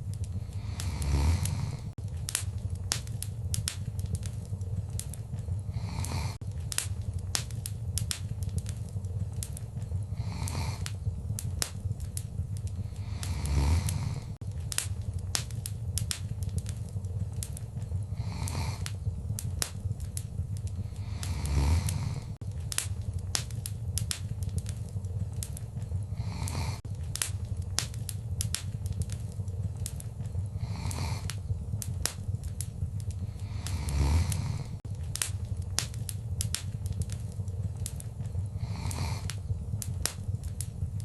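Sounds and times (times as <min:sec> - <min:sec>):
wood fire crackling: 0:00.0 - 0:41.0.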